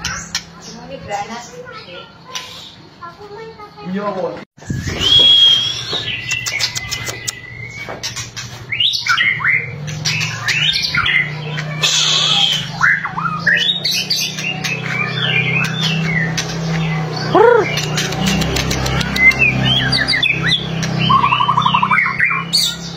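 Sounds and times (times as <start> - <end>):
bird singing whistled notes: 4.6 - 8.1, 8.7 - 16.3
bird quick sharp clicks: 5.9 - 7.4, 17.7 - 19.5.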